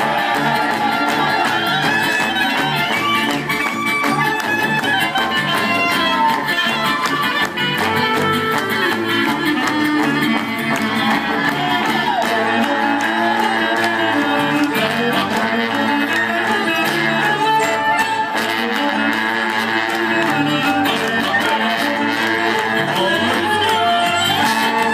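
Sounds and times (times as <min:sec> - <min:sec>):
fiddle: 0:00.0 - 0:24.9
folk band playing: 0:00.0 - 0:24.9
guitar: 0:00.0 - 0:24.9.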